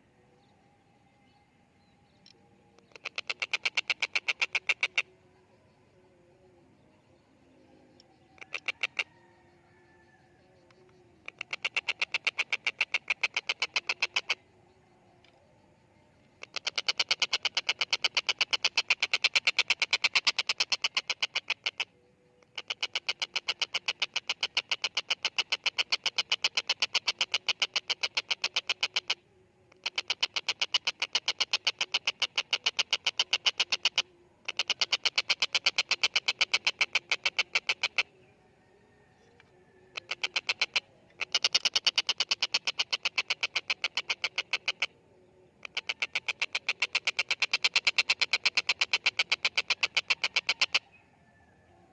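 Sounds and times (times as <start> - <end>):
kingfisher rattling calls: 2.8 - 5.1, 8.3 - 9.2, 11.2 - 14.4, 16.4 - 29.2, 29.8 - 38.1, 40.0 - 44.9, 45.6 - 50.9.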